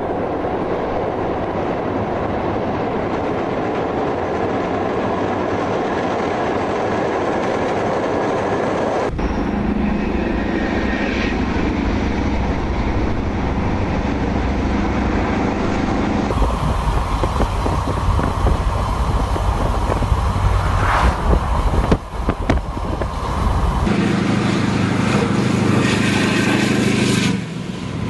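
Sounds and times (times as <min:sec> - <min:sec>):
locomotive engine humming: 0:00.0 - 0:28.0
wind: 0:00.0 - 0:28.0
car tyres rumbling: 0:09.1 - 0:23.9.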